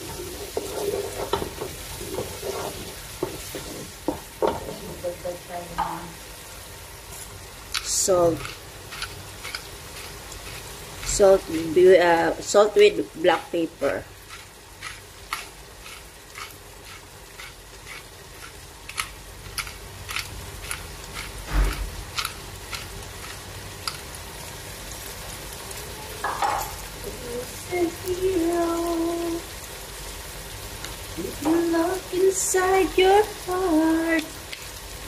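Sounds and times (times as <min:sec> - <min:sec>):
wooden spoon stirring: 0:00.0 - 0:05.0, 0:07.8 - 0:11.6, 0:13.9 - 0:23.5
sauce sizzling in a pot: 0:00.0 - 0:35.0.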